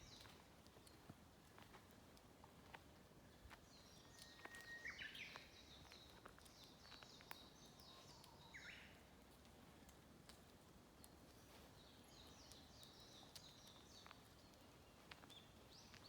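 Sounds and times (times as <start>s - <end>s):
faint clicks: 9.2s - 16.0s.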